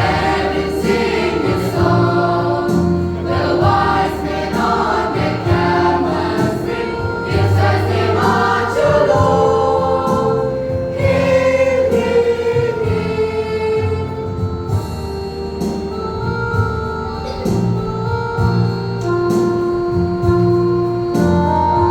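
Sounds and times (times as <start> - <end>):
children's choir singing: 0.0 - 14.9
bass line: 0.0 - 21.9
held chords: 0.0 - 21.9
low accompaniment: 0.0 - 21.9.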